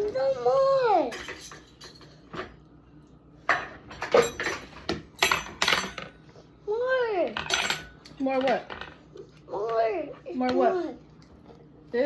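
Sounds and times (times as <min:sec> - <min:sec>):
cutlery clinking against dishes: 0:01.0 - 0:02.6, 0:03.4 - 0:06.2, 0:07.4 - 0:09.0.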